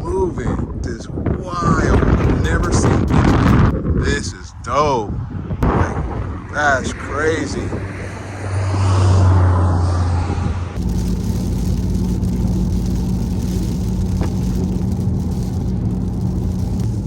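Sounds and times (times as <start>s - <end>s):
car engine hum: 7.7s - 17.0s
road noise inside car: 7.8s - 17.0s.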